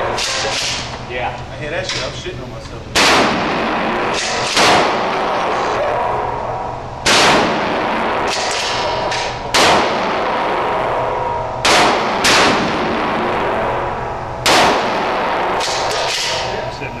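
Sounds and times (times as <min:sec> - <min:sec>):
loud gunshots: 0:00.0 - 0:00.9, 0:02.9 - 0:06.2, 0:07.0 - 0:16.7
fainter gunshots: 0:02.9 - 0:06.2, 0:07.0 - 0:13.8, 0:14.4 - 0:16.7.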